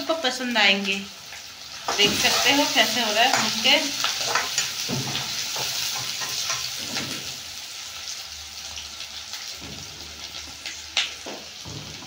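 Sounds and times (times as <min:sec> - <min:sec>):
onions sizzling in hot oil: 0:00.0 - 0:12.0
stirring in a pan: 0:01.4 - 0:07.4.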